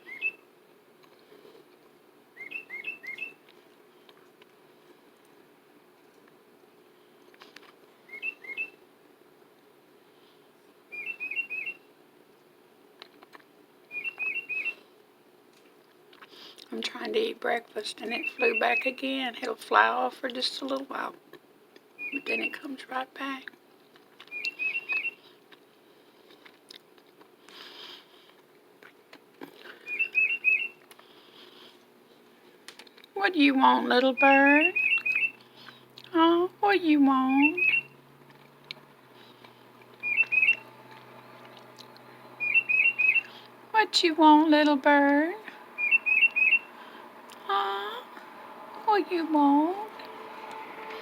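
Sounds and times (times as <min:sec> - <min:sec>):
bird whistling short notes: 0:13.9 - 0:14.8, 0:40.0 - 0:40.7, 0:42.4 - 0:43.4, 0:45.8 - 0:46.7.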